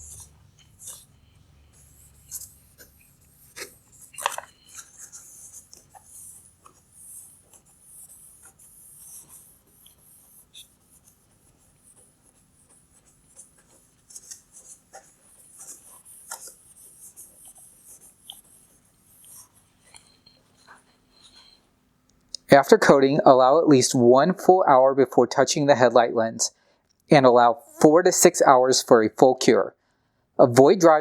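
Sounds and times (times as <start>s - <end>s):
towel rubbing plastic lens: 0.0s - 21.8s.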